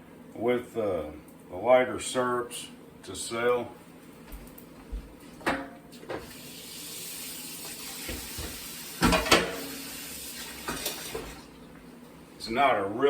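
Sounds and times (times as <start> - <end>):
tap running into sink: 7.6 - 9.8, 10.4 - 11.4
dishes clinking: 9.0 - 9.7.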